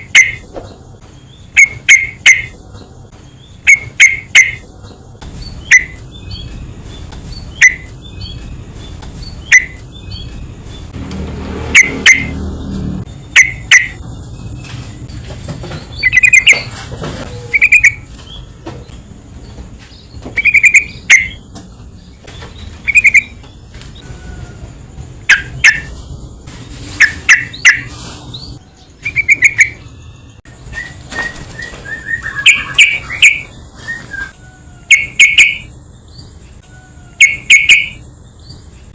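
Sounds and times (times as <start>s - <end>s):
bird chirping bubbly calls: 22.8s - 23.4s.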